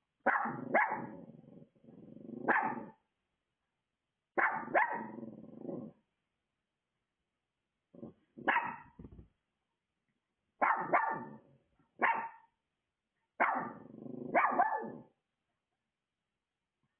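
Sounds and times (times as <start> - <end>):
dog barking: 0.2 - 1.1, 2.4 - 3.0, 4.4 - 5.2, 8.4 - 9.0, 10.6 - 11.4, 12.0 - 12.5, 13.4 - 15.1.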